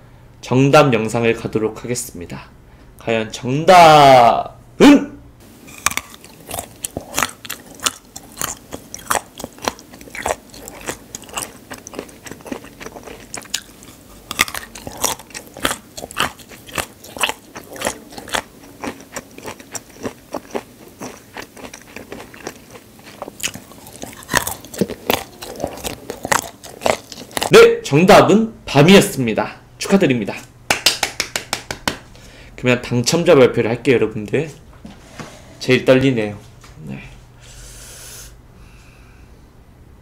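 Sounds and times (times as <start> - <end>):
chewing crunchy food: 5.7 - 27.5.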